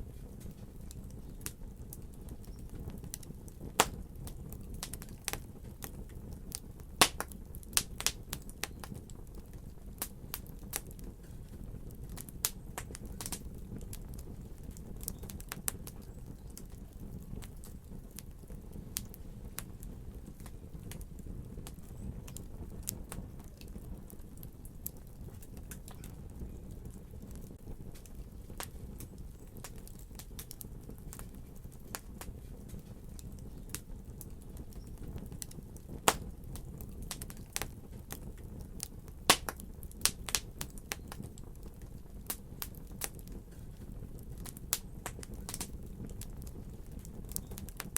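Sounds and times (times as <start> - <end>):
low rumble of burning fire: 0.0 - 47.9
wood fire crackling and popping: 0.0 - 47.9.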